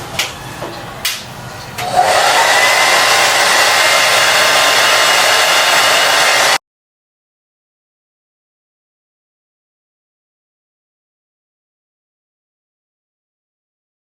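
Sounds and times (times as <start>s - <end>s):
hair dryer blowing: 1.8s - 6.6s.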